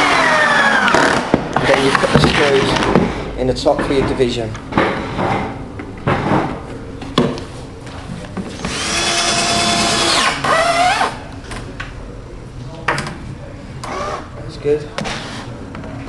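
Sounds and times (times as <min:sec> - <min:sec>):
power drill driving screw: 0:00.0 - 0:01.3, 0:08.6 - 0:11.2, 0:15.0 - 0:15.5.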